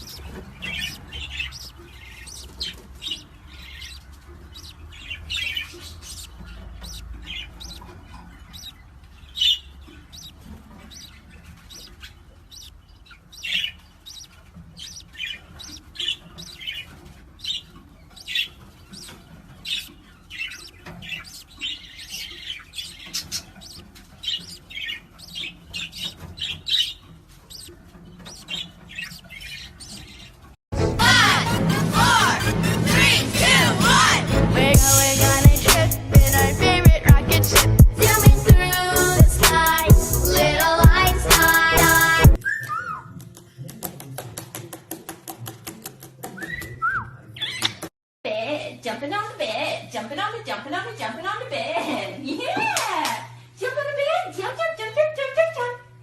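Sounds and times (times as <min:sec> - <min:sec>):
parrot chirping: 0:00.0 - 0:30.5, 0:34.8 - 0:43.2.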